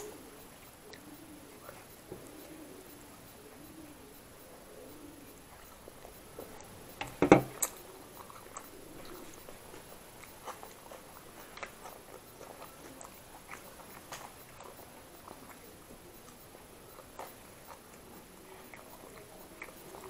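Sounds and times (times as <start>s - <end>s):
mouth clicks: 0.0s - 20.0s
person chewing: 5.2s - 20.0s.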